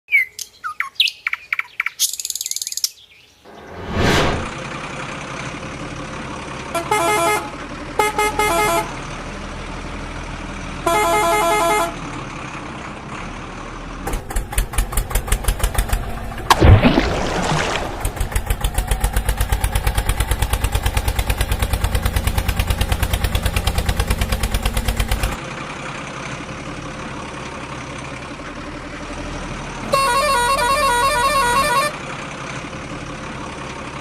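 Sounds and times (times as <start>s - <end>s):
engine-like hum: 0.1s - 34.0s
vehicle horn honking: 6.8s - 9.0s, 10.8s - 12.0s, 29.8s - 32.0s.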